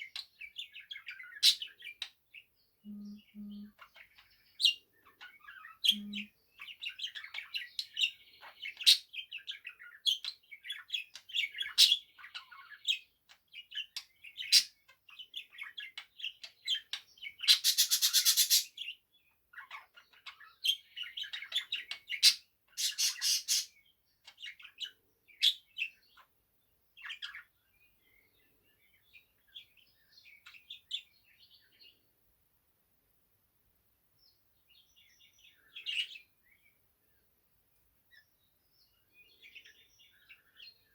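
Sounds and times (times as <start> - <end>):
budgerigar warbling and chattering: 2.9 - 7.7, 16.3 - 18.7, 19.6 - 23.7
harsh buzzy bird calls: 5.8 - 6.3, 21.8 - 23.8.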